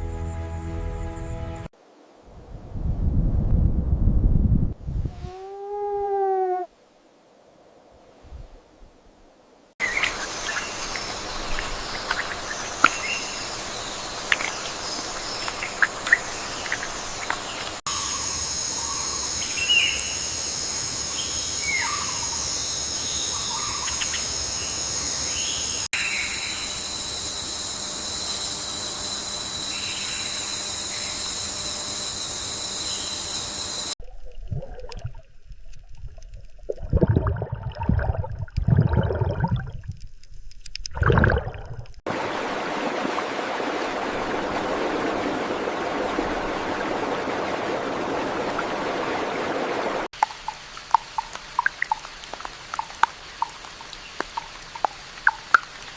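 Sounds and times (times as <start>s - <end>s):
high-pitched insect drones: 16.3s - 34.0s.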